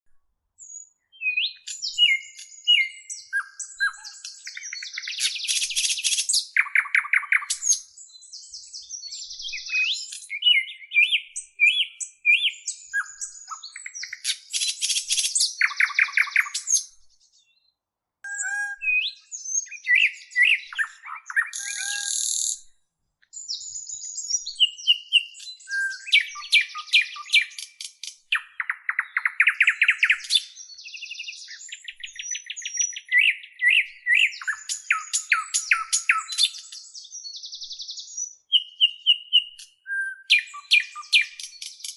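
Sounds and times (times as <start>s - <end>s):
birds singing and chirping: 0.6s - 41.9s.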